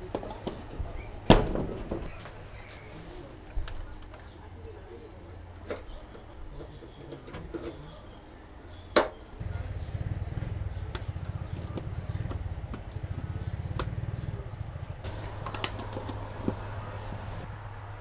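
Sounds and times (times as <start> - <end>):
stepper motors humming: 9.4 - 18.0.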